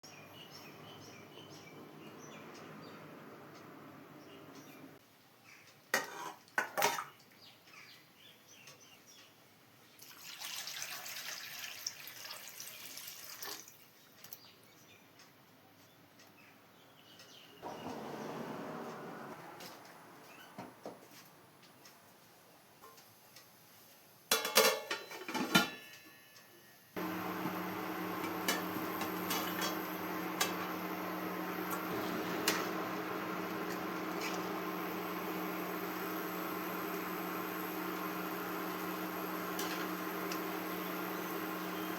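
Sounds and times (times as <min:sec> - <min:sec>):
kitchenware clattering: 0:24.3 - 0:25.9.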